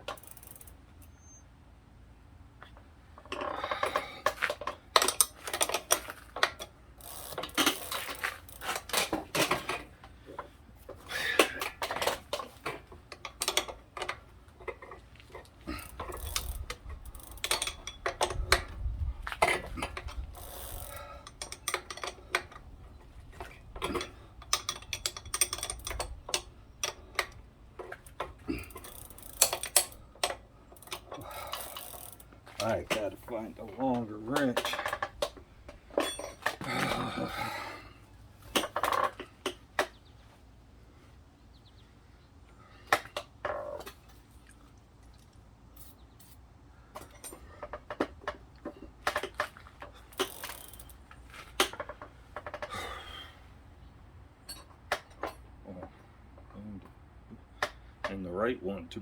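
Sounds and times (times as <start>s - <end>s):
metal hand tools clinking: 35.9s - 37.1s.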